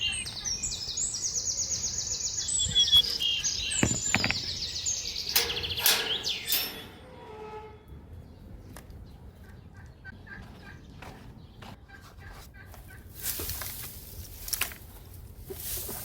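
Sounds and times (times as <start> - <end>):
rustles and knocks: 3.8 - 4.6
chickens clucking: 9.4 - 13.5.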